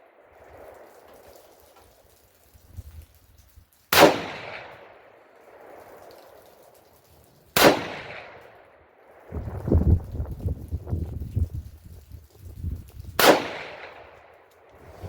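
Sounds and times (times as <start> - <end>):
rifle shots with echo: 3.9 - 6.0, 7.6 - 8.8, 13.2 - 15.0.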